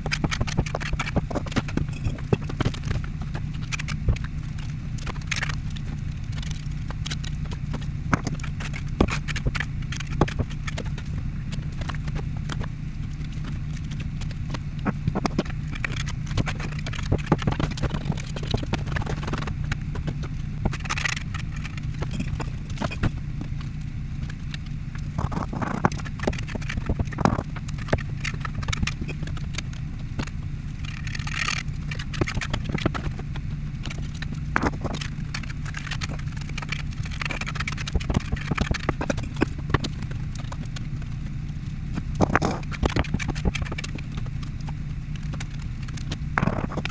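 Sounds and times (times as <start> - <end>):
steady low hum: 0.0 - 46.9
bricks knocking and tapping: 5.0 - 12.7.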